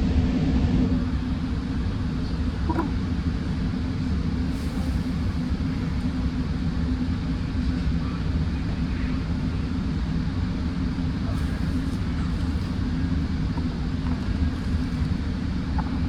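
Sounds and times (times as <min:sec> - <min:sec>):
train interior rumble: 0:00.0 - 0:16.0
faint train squeal: 0:04.5 - 0:06.2, 0:11.3 - 0:12.8.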